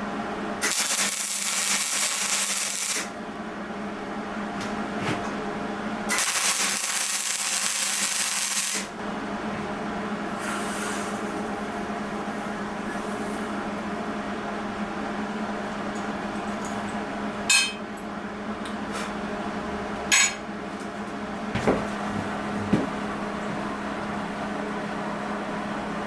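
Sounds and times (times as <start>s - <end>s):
steady machine hum: 0.0s - 26.0s
power tool running: 0.6s - 3.2s, 6.1s - 9.0s.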